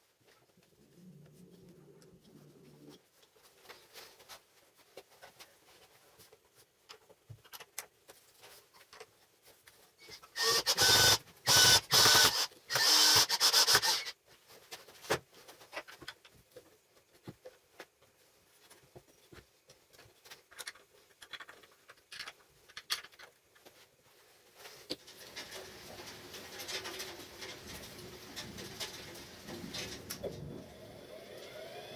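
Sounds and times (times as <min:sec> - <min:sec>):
power tool running: 0:10.4 - 0:14.1.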